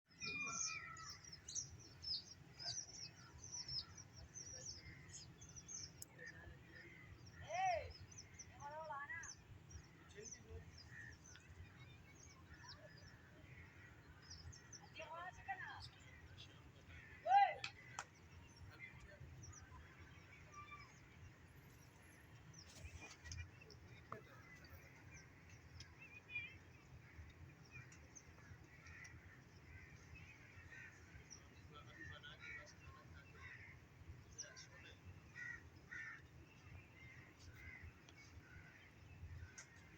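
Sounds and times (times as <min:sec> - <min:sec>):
bird chirps and calls: 0:00.1 - 0:16.3
small birds chirping: 0:00.1 - 0:39.9.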